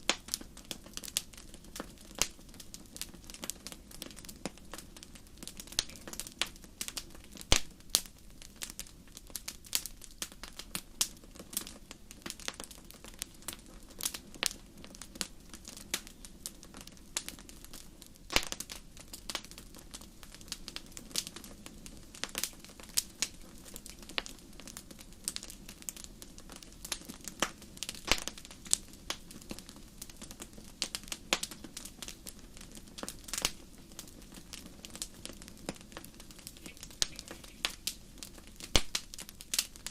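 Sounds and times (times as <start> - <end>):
low rumble of flame: 0.0 - 39.9
wood fire crackling and popping: 0.0 - 39.9.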